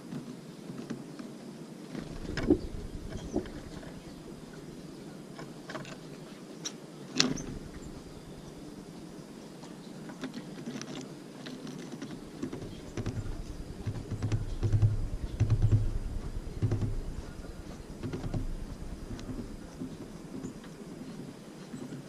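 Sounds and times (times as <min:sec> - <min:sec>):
dull low thumps: 0:02.0 - 0:05.0, 0:07.3 - 0:09.1, 0:12.2 - 0:21.1
birds pecking taps and clicks: 0:06.6 - 0:08.6, 0:10.1 - 0:20.8.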